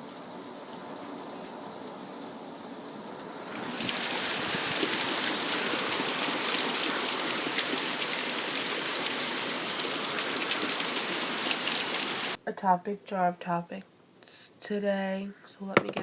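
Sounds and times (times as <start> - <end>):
heavy rain pouring: 3.3 - 12.4.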